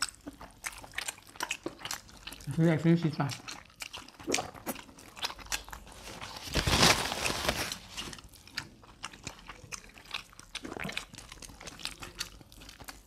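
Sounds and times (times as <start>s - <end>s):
person biting and chewing: 0.0s - 2.6s, 3.2s - 13.0s
wet mouth clicks: 0.0s - 5.9s, 8.6s - 13.0s.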